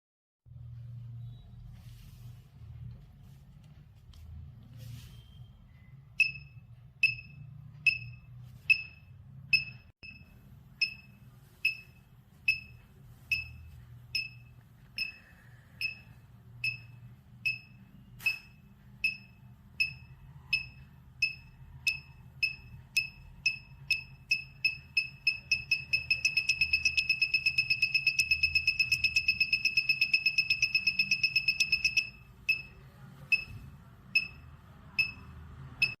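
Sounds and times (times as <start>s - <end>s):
buzzer beeping: 15.8s - 36.0s.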